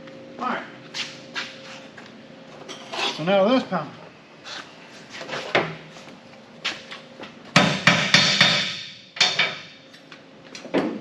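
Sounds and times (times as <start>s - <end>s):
hammer knocking on sheet metal: 7.6s - 8.9s.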